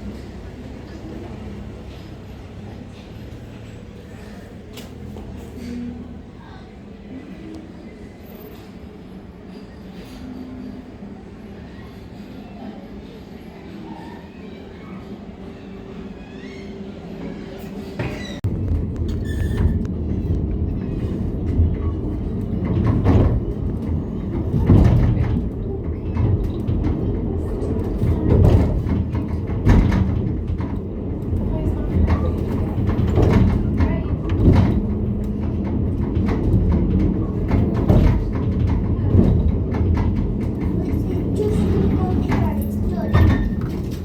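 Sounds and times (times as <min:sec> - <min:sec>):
moving bus rumble: 0:00.0 - 0:14.1, 0:16.7 - 0:44.0
rattles and clicks: 0:18.4 - 0:44.0.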